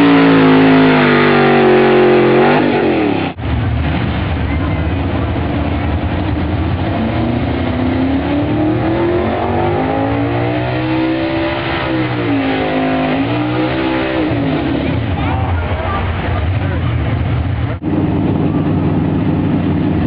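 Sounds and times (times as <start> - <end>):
truck engine at full throttle: 0.0 - 20.0.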